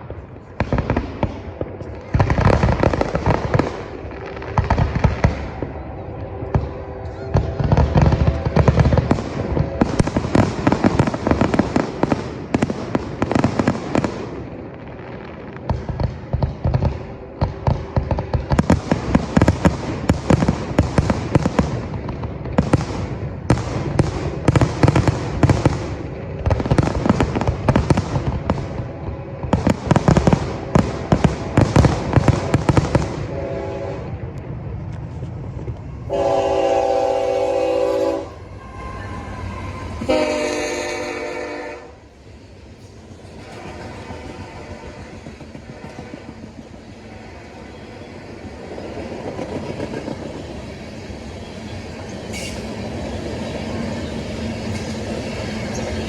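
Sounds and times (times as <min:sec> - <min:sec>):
fireworks bangs and crackles: 0:00.0 - 0:38.2
train horn blowing: 0:04.2 - 0:11.1, 0:33.2 - 0:34.4, 0:36.1 - 0:42.1, 0:43.3 - 0:46.5, 0:52.2 - 0:52.8.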